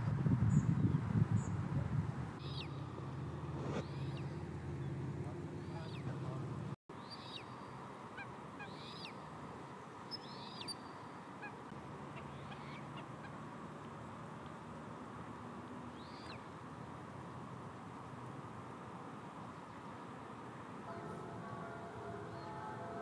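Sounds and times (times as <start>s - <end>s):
steady background hiss: 2.0s - 23.0s
bird calling: 2.4s - 2.9s, 3.7s - 6.4s, 8.2s - 9.2s, 10.1s - 13.4s, 16.0s - 16.5s.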